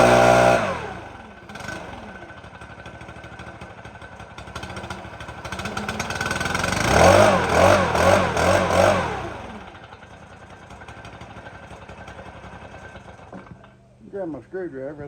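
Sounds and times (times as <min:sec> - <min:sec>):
leaf blower engine revving: 0:00.0 - 0:13.5.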